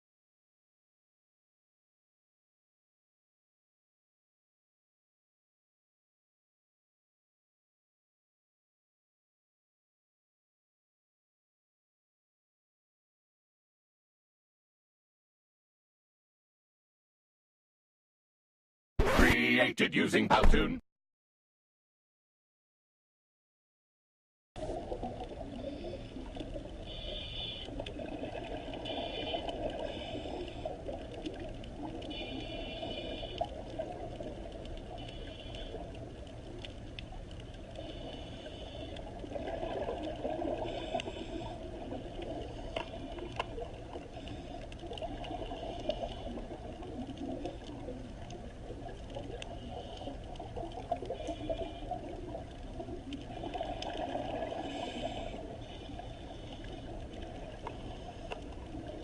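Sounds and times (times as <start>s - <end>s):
flowing water: 24.6s - 59.0s.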